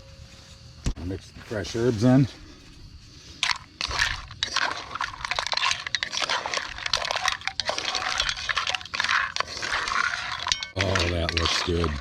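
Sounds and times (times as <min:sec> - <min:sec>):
mussel shells clattering in pot: 0:03.4 - 0:12.0.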